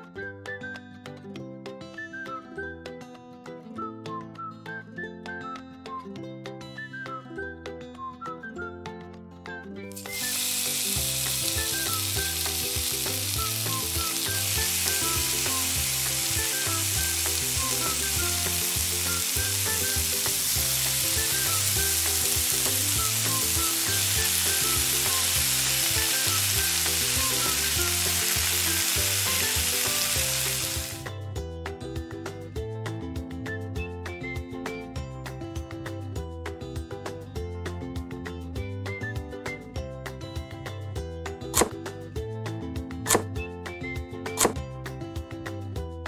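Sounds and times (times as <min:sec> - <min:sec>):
light background music: 0:00.0 - 0:46.0
fish sizzling in hot oil: 0:10.0 - 0:31.0.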